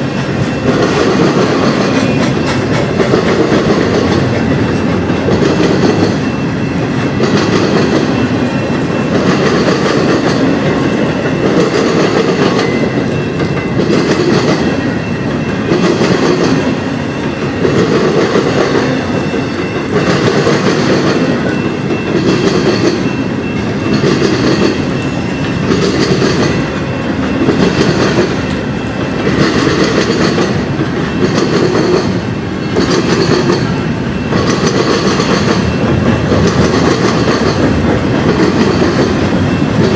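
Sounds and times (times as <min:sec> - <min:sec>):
train rumbling: 0:00.0 - 0:39.9
train wheels clacking on rails: 0:00.0 - 0:39.9.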